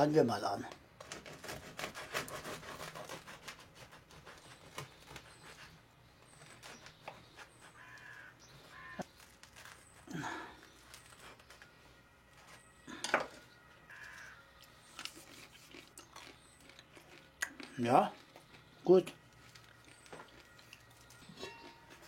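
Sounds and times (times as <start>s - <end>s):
knife sawing through crusty bread: 1.0s - 8.2s.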